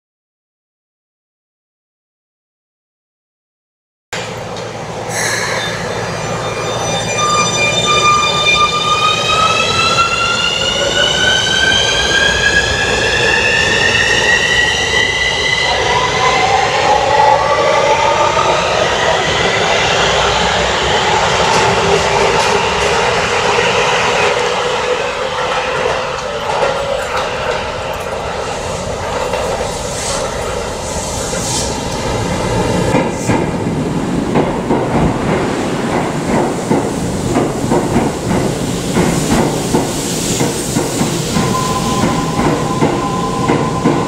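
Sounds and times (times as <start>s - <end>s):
train traction motor whine: 4.2s - 17.0s
wheels rumbling on rails: 17.6s - 44.0s.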